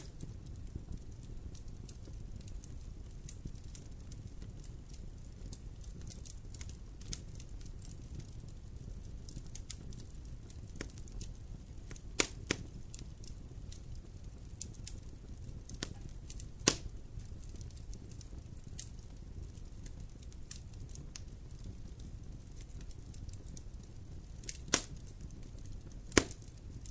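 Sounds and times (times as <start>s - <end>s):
fire crackles and pops: 0.0s - 26.9s
low rumble of flames: 0.0s - 26.9s.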